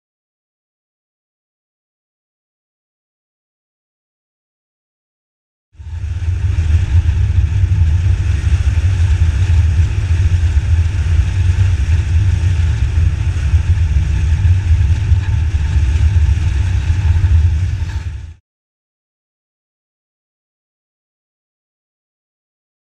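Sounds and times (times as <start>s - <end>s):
motorcycle engine running: 5.8s - 18.4s.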